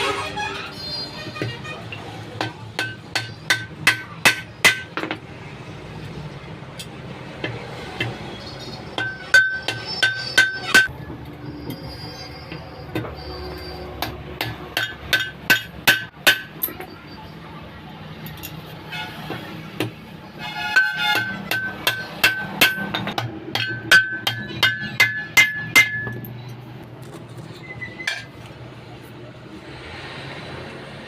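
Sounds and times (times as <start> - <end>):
hammer striking steel: 2.3 - 5.2, 9.0 - 10.9, 14.0 - 16.9, 20.6 - 26.4.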